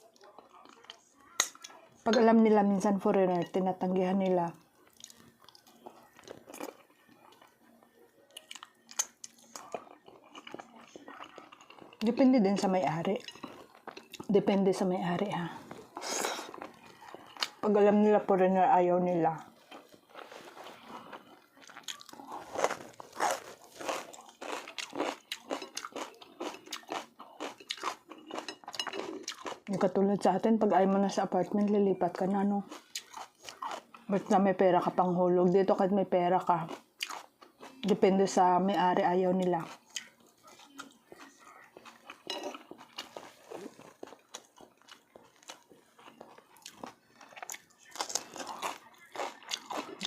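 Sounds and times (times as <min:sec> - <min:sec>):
person chewing crunchy food: 0:04.8 - 0:07.6, 0:08.3 - 0:12.1, 0:13.1 - 0:14.3, 0:15.5 - 0:17.6, 0:19.4 - 0:29.8, 0:32.7 - 0:34.1, 0:36.7 - 0:37.9, 0:39.6 - 0:50.0.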